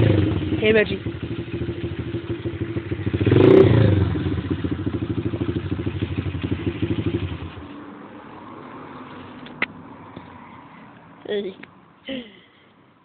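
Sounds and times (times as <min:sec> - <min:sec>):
motorbike engine puttering: 0:00.0 - 0:07.7.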